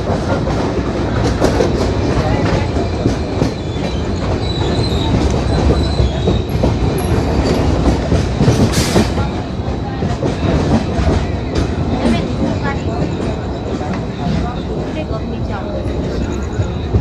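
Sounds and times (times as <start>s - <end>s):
train wheels clattering over rails: 0.0s - 17.0s
faint wheel squeal: 3.5s - 7.7s.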